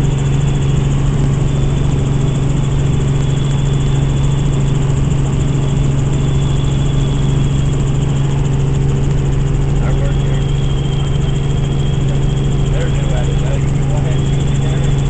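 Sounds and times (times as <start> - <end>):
helicopter engine and rotors: 0.0 - 15.0
faint high steady tone: 5.4 - 8.6, 9.7 - 15.0.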